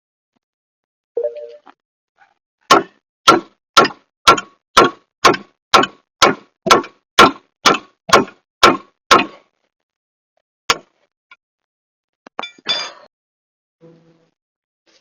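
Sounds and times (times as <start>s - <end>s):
hammer striking metal: 2.7s - 9.4s.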